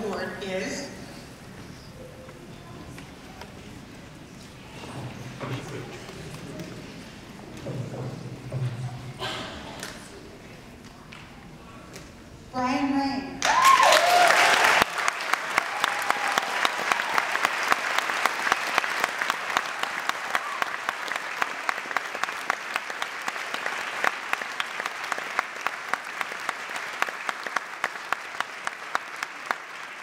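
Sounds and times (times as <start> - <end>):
audience applauding: 13.4 - 30.0.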